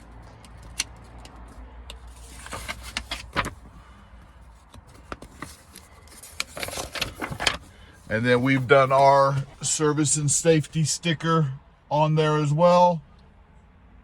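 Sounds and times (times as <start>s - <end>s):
rustling scrapes: 1.0s - 3.8s, 4.6s - 9.6s.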